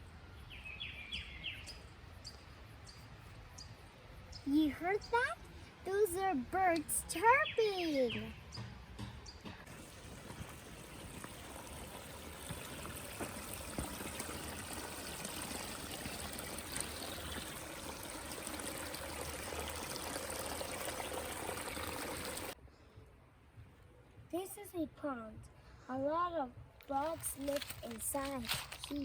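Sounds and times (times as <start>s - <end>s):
water trickling: 9.7s - 22.6s.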